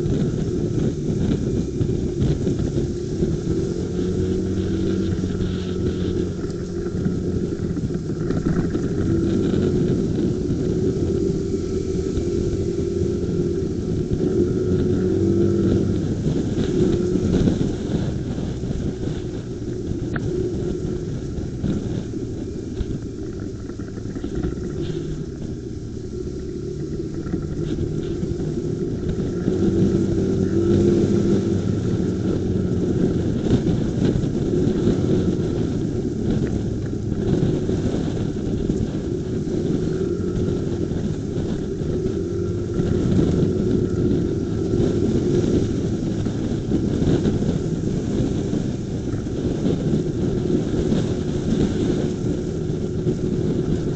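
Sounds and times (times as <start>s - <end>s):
motorcycle engine hum: 0.0s - 53.9s
wind noise: 0.0s - 53.9s.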